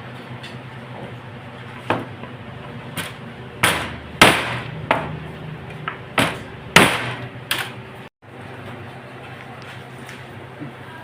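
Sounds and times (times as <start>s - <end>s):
sharp knocks: 3.0s - 5.2s, 5.9s - 7.6s.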